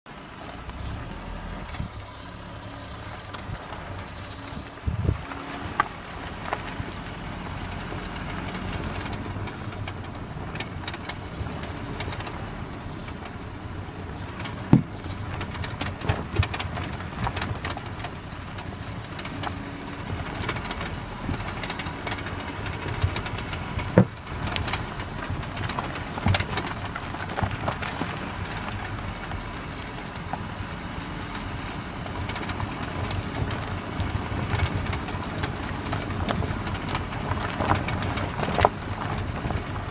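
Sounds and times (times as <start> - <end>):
vehicle noise: 0.0 - 39.9
suspension clunks and clicks: 0.1 - 39.9
sharp loud suspension knocks: 14.3 - 18.6, 19.2 - 29.0.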